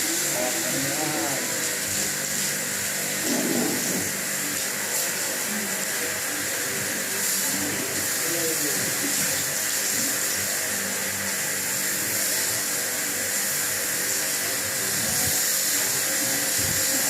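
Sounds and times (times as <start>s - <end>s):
pressure washer jet hissing: 0.0s - 17.0s.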